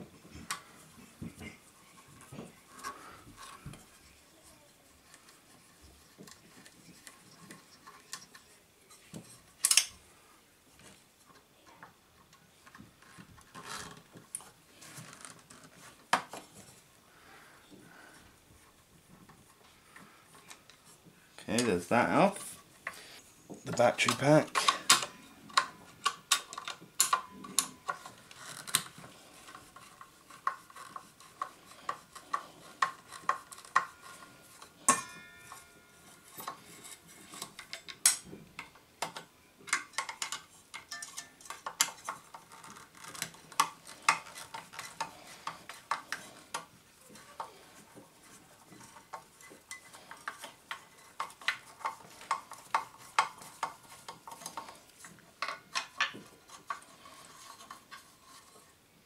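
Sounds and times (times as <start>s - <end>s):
metal parts and tools clinking: 23.6s - 58.6s.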